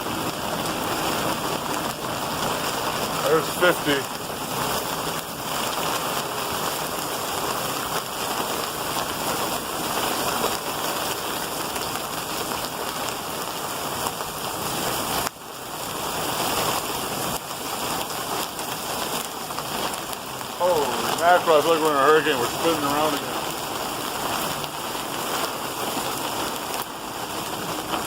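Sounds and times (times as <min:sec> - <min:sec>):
heavy rain: 0:00.0 - 0:28.0.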